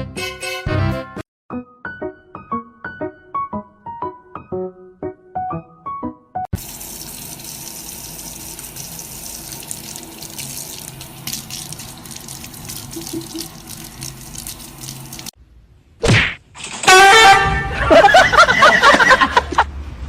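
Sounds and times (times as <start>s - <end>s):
piano notes: 1.5s - 6.5s
running water: 6.6s - 15.4s.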